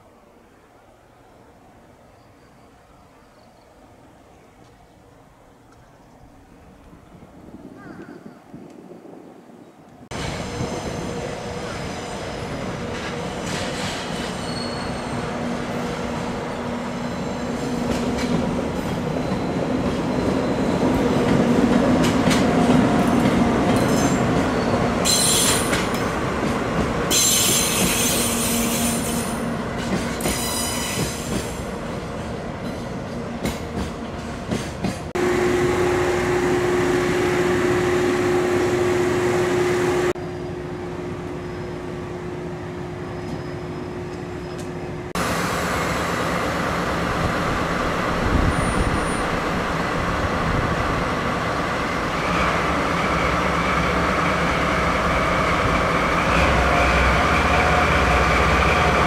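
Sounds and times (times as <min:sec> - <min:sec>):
freight train wagons rumbling: 0:05.3 - 0:59.0
high-pitched wheel squeals: 0:14.3 - 0:15.3.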